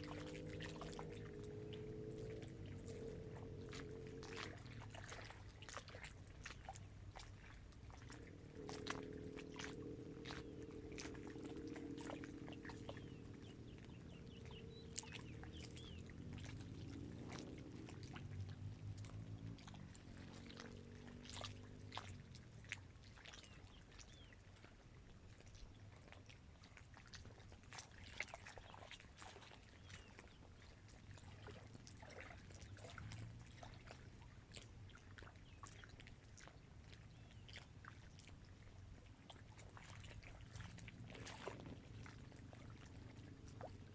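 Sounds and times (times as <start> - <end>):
distant motor humming: 0.0 - 5.1, 8.2 - 17.7
small waves lapping: 0.0 - 43.9
water splashes and clicks: 0.0 - 43.9.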